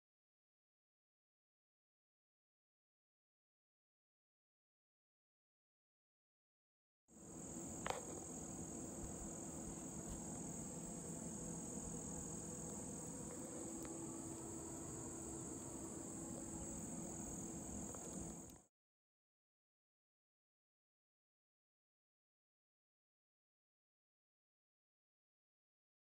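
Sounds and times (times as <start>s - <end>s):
insects chorus: 7.2s - 18.7s.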